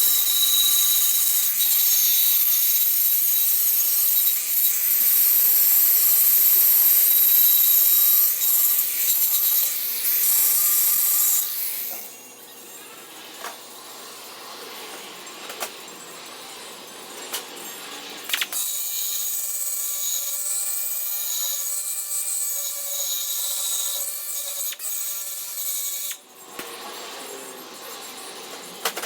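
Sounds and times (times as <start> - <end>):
power tool grinding sheet metal: 0.0 - 12.3.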